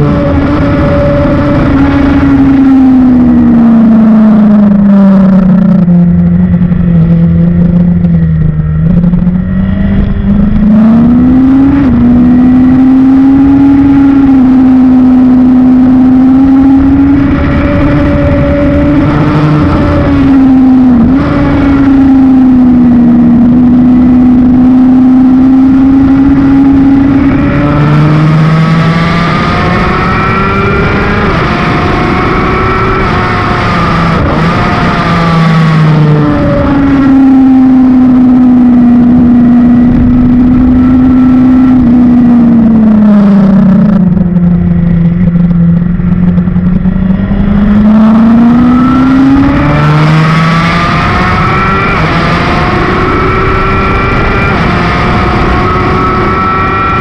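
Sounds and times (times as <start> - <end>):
motorcycle engine running hard: 0.0 - 57.0.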